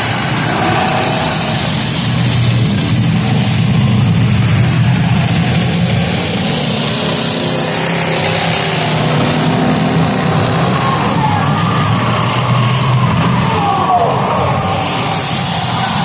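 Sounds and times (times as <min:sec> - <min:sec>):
car engines revving: 0:00.0 - 0:16.0
high wavering whine: 0:00.0 - 0:16.0.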